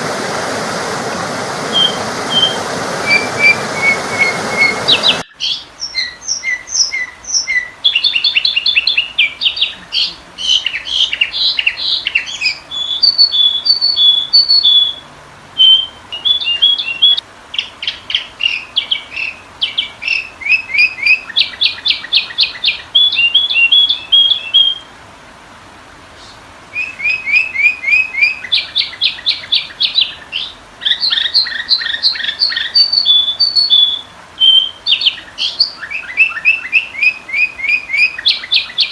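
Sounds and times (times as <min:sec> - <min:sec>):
bird chirps and chattering trills: 0:01.8 - 0:15.0.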